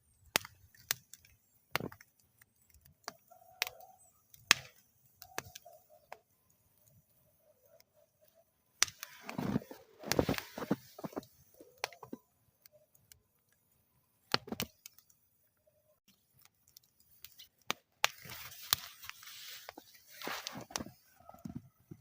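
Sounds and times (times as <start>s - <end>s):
wood fire crackling: 0.0s - 22.0s
fire hissing: 8.0s - 12.2s, 17.0s - 21.4s.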